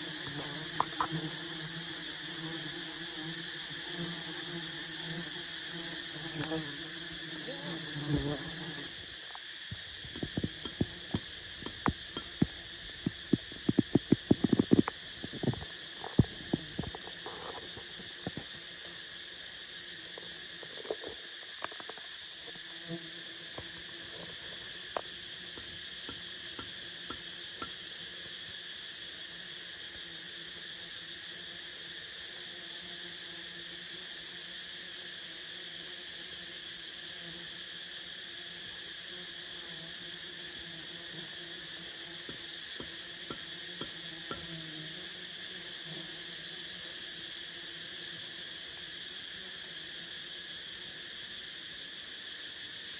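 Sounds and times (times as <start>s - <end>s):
insect chorus: 0.0s - 52.9s
sharp clicks and knocks: 9.8s - 18.5s.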